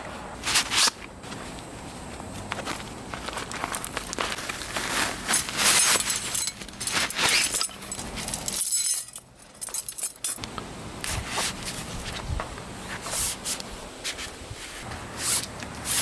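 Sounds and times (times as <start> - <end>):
metal camping gear clinking: 3.2 - 10.5.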